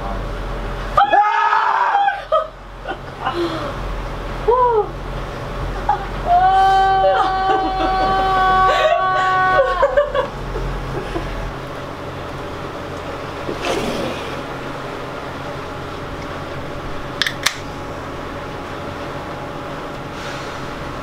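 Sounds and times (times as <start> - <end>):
boat engine drone: 0.0 - 21.0
sharp clicks: 17.2 - 17.7.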